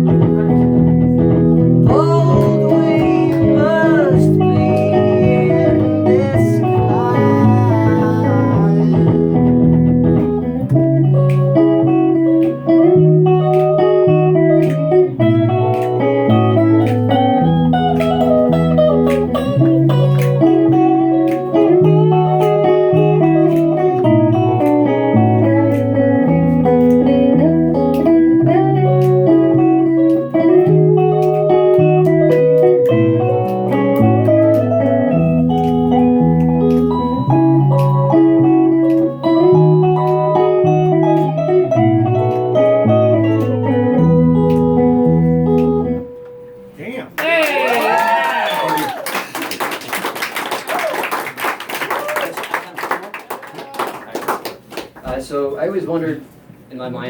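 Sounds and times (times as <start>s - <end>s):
electric guitar music: 0.0s - 47.2s.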